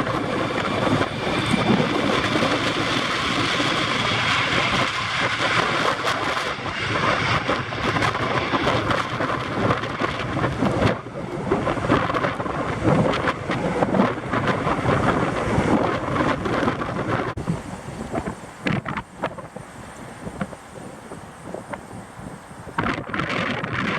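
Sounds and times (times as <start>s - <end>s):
gusty wind buffeting microphone: 0.0s - 23.9s.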